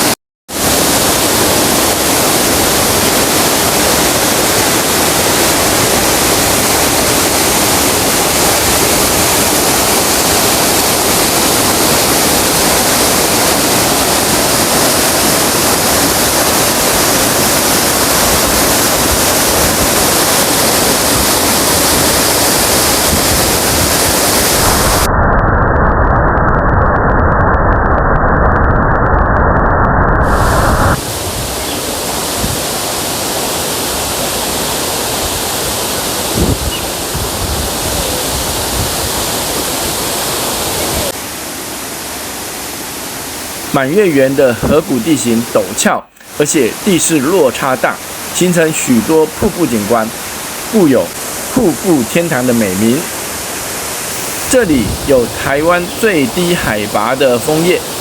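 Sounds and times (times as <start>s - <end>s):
waterfall rushing: 0.0s - 25.1s, 30.3s - 58.0s.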